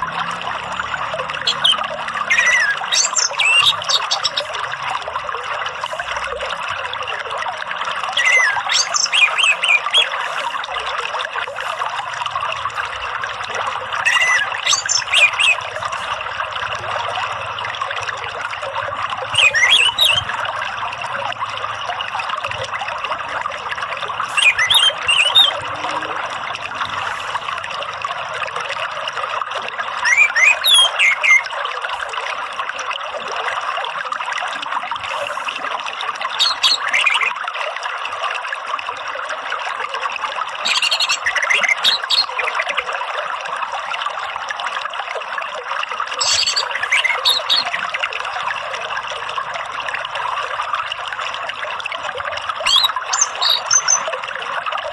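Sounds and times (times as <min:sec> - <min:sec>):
trickling running water: 0:00.0 - 0:54.9
thrush sliding chirps: 0:01.5 - 0:04.6, 0:13.3 - 0:16.2, 0:24.3 - 0:25.6, 0:46.2 - 0:48.1, 0:52.6 - 0:54.1.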